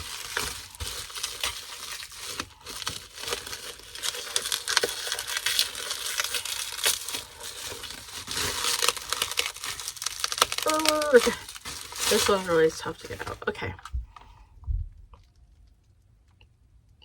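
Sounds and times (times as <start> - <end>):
packaging crinkling: 0.0 - 14.4.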